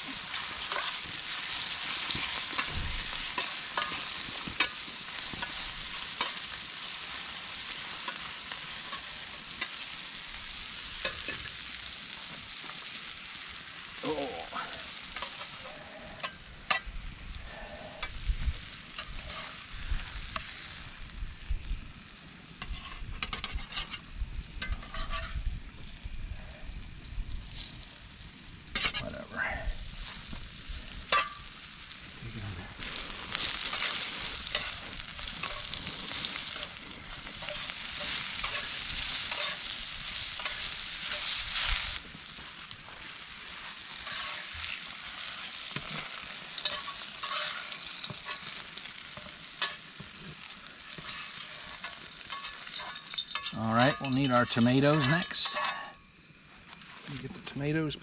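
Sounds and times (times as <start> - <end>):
steaks sizzling in a frying pan: 0.0 - 58.0.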